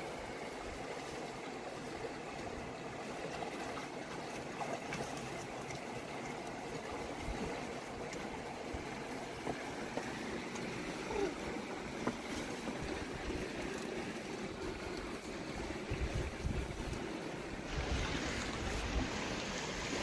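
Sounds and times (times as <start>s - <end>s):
river water rushing: 0.0s - 20.0s
wind on microphone: 15.6s - 20.0s.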